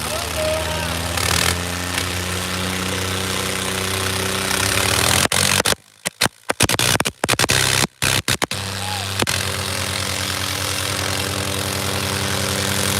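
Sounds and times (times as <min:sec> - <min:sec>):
tractor diesel engine running: 0:00.0 - 0:06.0, 0:08.6 - 0:12.9
loud background haze: 0:00.0 - 0:12.9.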